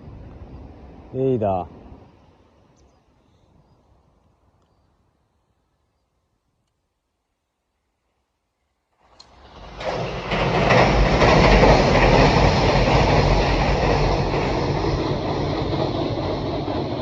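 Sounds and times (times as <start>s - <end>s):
train passing rumble and rattle: 0.0s - 2.7s, 9.0s - 17.0s.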